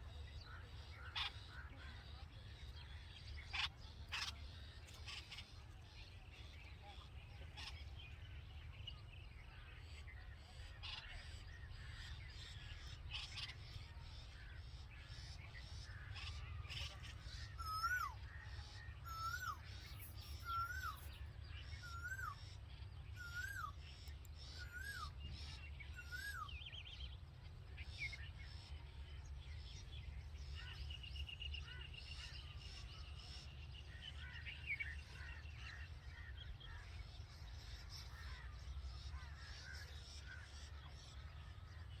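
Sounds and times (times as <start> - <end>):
bird whistled call: 17.6 - 18.2, 19.0 - 19.6, 20.4 - 21.0, 23.2 - 23.8, 24.6 - 25.1, 26.0 - 26.5.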